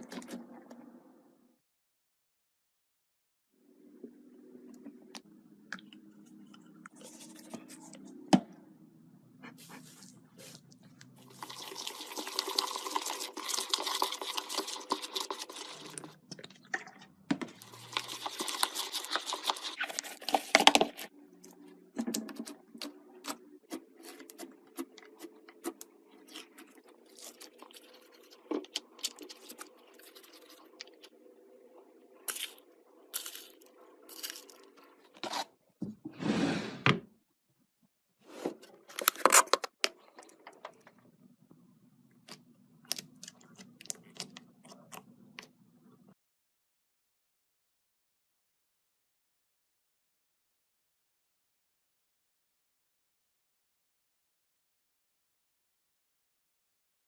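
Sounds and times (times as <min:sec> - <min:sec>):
crackly crunching slime: 0:32.2 - 0:35.4.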